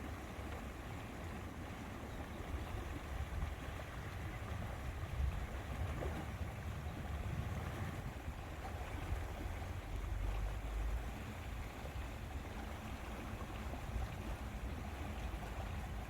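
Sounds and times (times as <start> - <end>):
lake water lapping: 0.0 - 16.0
wind rumble on microphone: 2.1 - 16.0.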